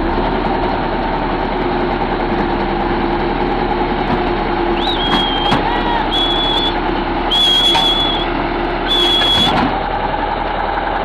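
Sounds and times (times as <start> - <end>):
heavy vehicle engine running: 0.0 - 11.0
high whistling tones: 4.8 - 8.3, 8.9 - 9.6.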